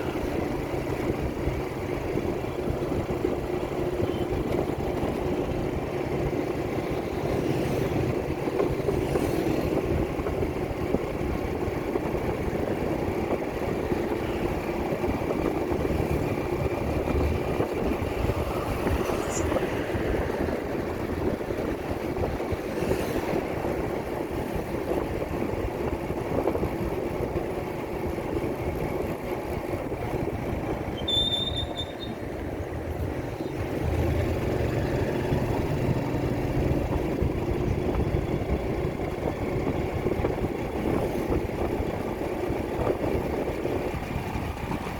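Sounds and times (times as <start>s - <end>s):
wind rumbling on microphone: 0.0s - 44.9s
motorcycle engine running: 23.5s - 44.9s.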